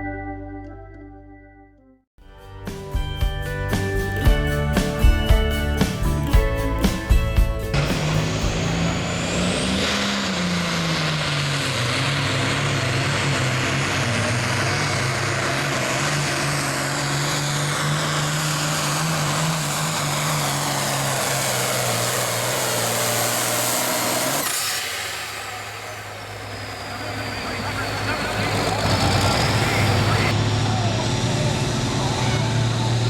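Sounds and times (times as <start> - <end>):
tractor diesel engine at full throttle: 4.2 - 33.0.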